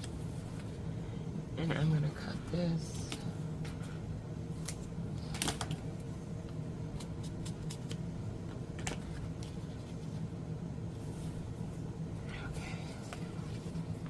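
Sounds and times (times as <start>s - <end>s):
air conditioner hum: 0.0s - 14.0s
scissors snipping paper: 7.0s - 8.0s.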